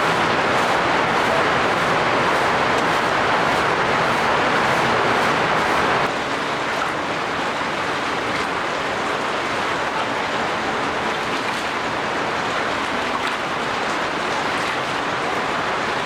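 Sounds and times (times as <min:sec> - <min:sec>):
heavy rain: 0:00.0 - 0:06.1.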